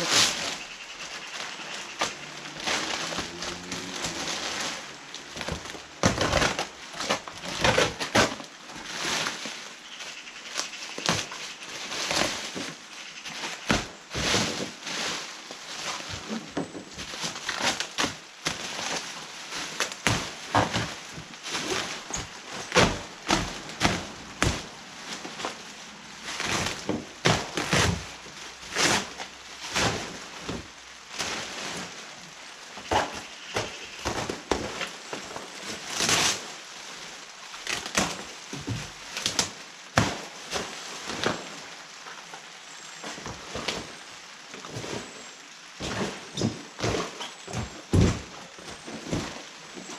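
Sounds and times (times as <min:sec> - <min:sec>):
cardboard box being torn open: 0:02.0 - 0:08.4.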